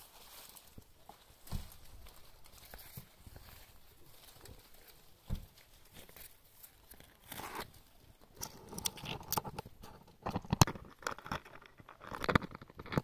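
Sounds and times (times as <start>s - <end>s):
dry leaves crackling and rustling: 0.0s - 8.0s.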